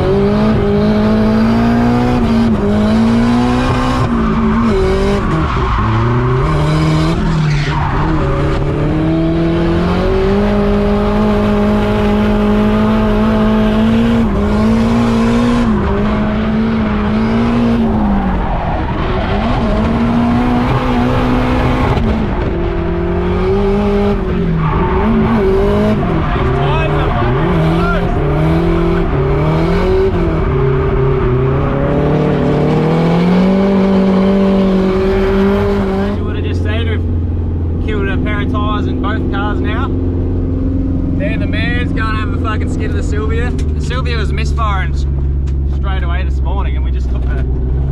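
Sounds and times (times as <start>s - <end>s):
car engine at high revs: 0.0s - 47.9s
tyres squealing: 24.5s - 31.4s.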